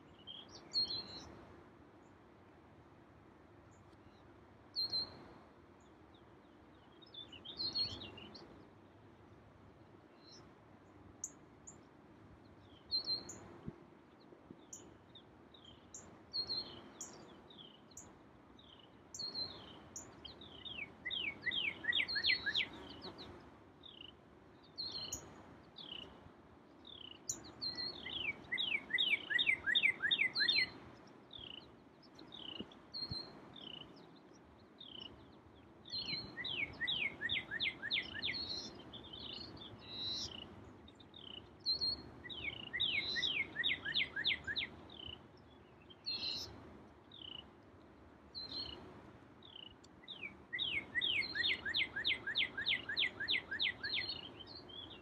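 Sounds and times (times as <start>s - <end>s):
songbird whistled song: 0.0s - 1.4s, 3.7s - 9.0s, 9.8s - 55.0s
faint low background noise: 0.0s - 55.0s
bird chirps: 14.6s - 26.2s, 26.8s - 47.5s, 48.4s - 48.8s, 49.4s - 55.0s.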